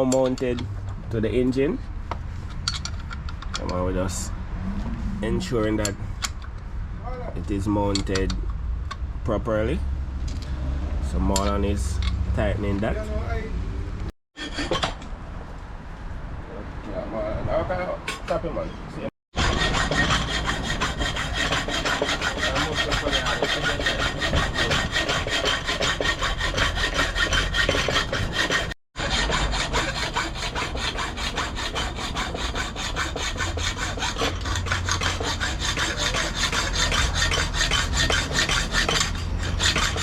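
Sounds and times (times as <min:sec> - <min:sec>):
hacksaw cutting metal: 0:14.4 - 0:15.0, 0:19.4 - 0:40.0.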